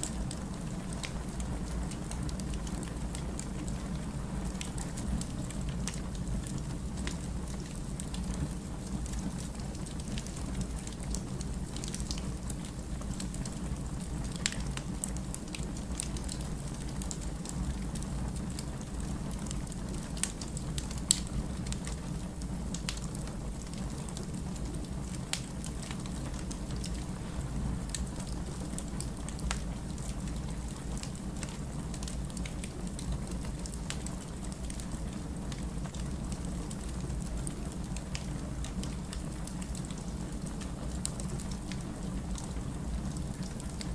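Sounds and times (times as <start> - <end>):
fire crackles and pops: 0.0 - 43.9
fireplace low rumble: 0.0 - 43.9.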